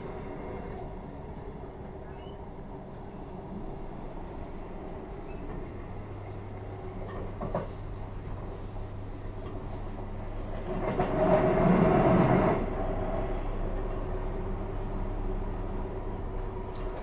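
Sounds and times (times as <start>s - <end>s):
train carriage rumbling: 0.0s - 17.0s
faint short squeaks: 2.0s - 3.4s.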